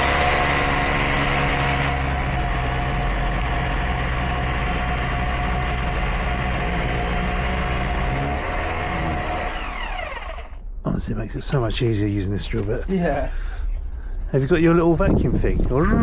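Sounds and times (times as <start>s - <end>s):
electric drill boring: 0.0s - 10.6s.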